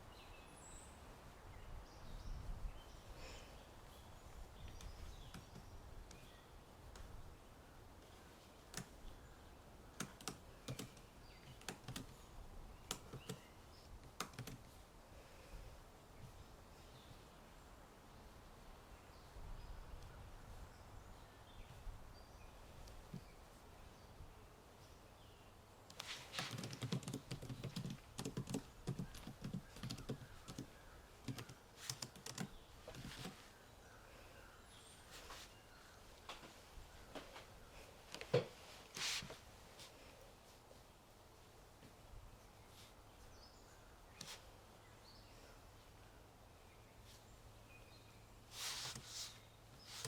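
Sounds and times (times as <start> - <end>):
faint bird chirps: 0.0 - 38.0
computer keyboard typing: 10.0 - 12.1, 12.9 - 13.4, 14.0 - 14.6, 25.9 - 33.4.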